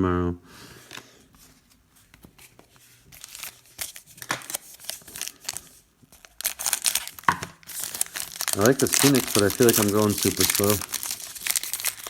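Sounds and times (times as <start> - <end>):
foil wrapper tearing and crinkling: 3.1 - 12.0.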